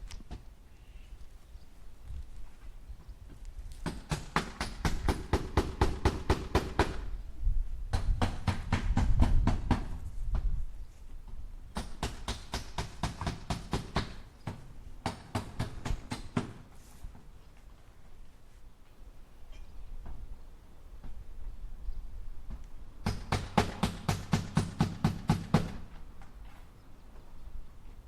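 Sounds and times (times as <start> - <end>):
hammer striking nails into wood: 3.8 - 7.0, 7.9 - 10.0, 11.8 - 16.6, 23.0 - 25.8.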